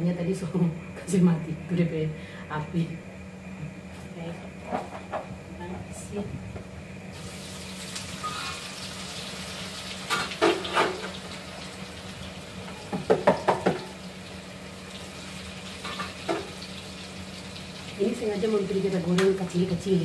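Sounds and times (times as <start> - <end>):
steady low hum: 0.0 - 20.0
food sizzling in hot oil: 7.1 - 20.0.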